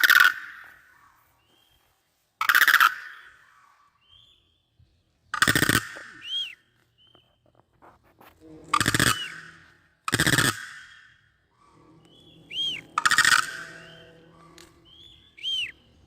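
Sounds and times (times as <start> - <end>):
crane calling harshly: 0.0 - 1.3, 2.4 - 4.2, 5.3 - 7.2, 8.7 - 16.0.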